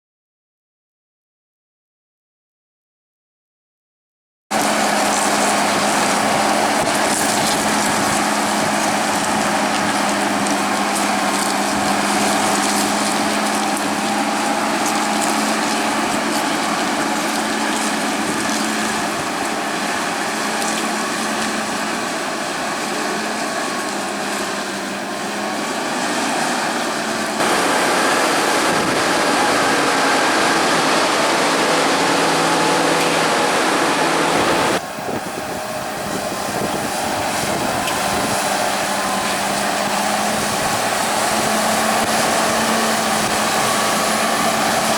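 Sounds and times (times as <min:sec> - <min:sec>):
harvest machinery engine hum: 0:04.5 - 0:44.9
wide rushing noise: 0:27.4 - 0:34.9.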